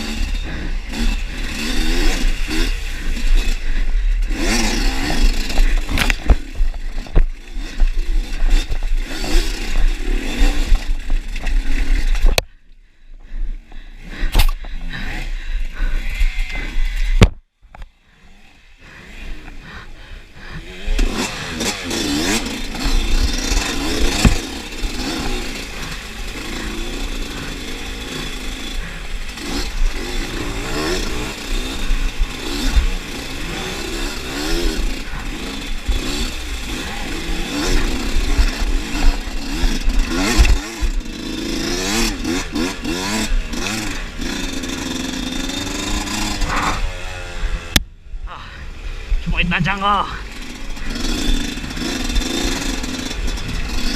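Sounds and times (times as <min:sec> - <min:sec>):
dirt motorcycle engine revving: 0:00.0 - 0:53.9
steady noisy rush: 0:42.1 - 0:53.9.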